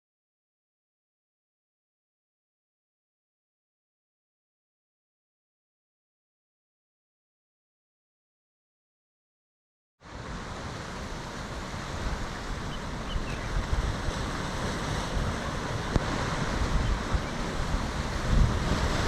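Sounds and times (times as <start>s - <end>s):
steady rushing noise: 10.0s - 19.0s
wind buffeting microphone: 10.1s - 19.0s.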